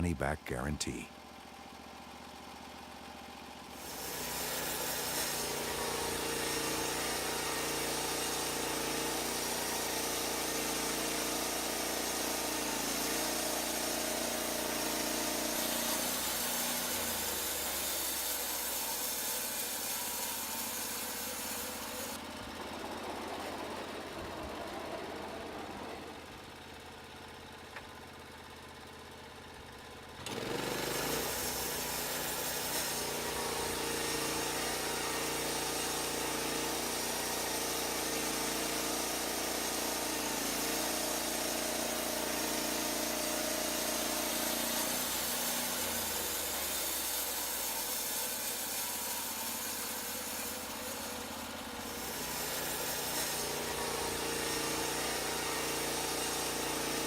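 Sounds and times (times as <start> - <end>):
sawmill engine humming: 0.0 - 57.0
band saw blade cutting log: 3.7 - 22.2, 30.3 - 57.0.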